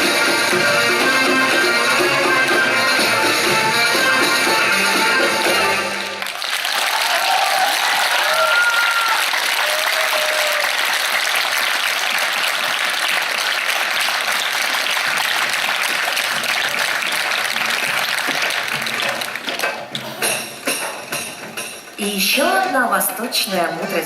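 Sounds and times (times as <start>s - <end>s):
music: 0.0s - 6.4s, 15.0s - 24.0s
audience applauding: 0.0s - 20.8s.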